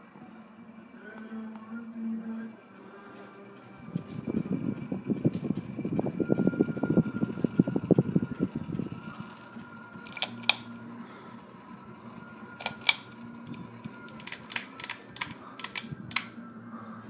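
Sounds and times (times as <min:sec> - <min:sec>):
ceiling fan humming: 0:00.0 - 0:17.0
sharp mechanical clicks: 0:10.0 - 0:10.7, 0:12.6 - 0:16.5.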